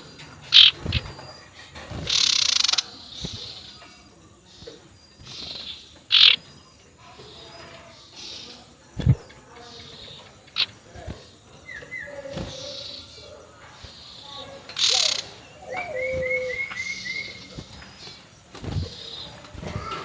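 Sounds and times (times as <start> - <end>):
owl calling: 6.1 - 6.4, 14.8 - 17.6.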